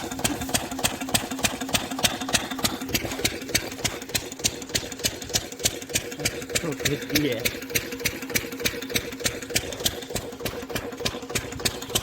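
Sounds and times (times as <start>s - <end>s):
farm engine knocking: 0.0s - 12.0s.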